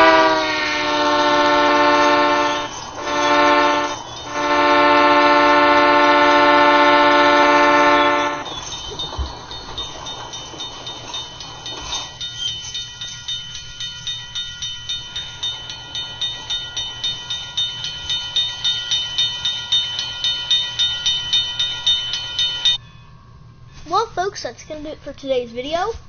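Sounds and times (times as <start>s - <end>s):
train wheels clicking over rail joints: 0.0s - 22.8s
high ringing from wheels: 0.0s - 23.9s.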